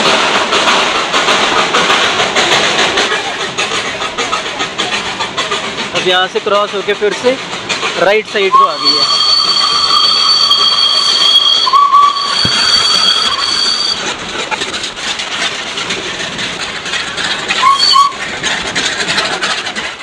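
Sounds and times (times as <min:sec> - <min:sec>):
carriages clattering over rails: 0:00.0 - 0:20.0
train wheels squealing: 0:04.9 - 0:14.2, 0:17.0 - 0:20.0.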